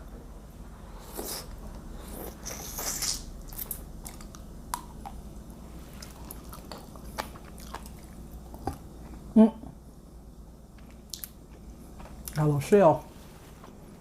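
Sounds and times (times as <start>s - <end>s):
person chewing food: 1.0s - 9.3s, 10.7s - 12.4s.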